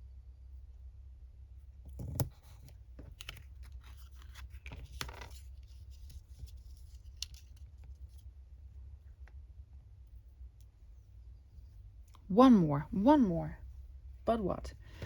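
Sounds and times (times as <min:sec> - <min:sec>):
low steady hum: 0:00.0 - 0:15.0
paper rustling and snipping: 0:02.0 - 0:08.2.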